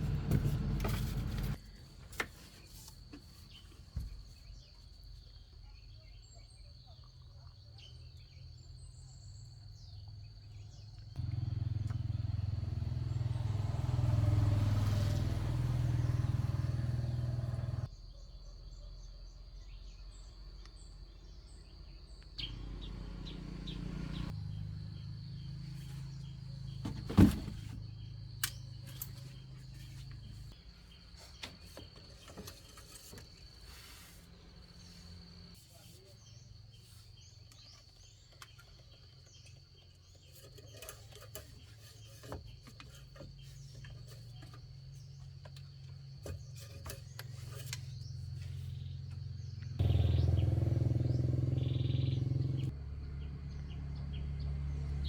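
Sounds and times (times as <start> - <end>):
motor humming: 11.2 - 17.9.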